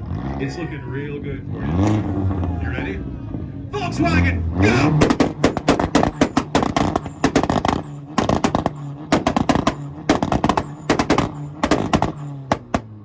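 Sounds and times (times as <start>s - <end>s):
steady engine drone: 1.4s - 13.0s
exhaust pops and bangs: 4.6s - 13.0s.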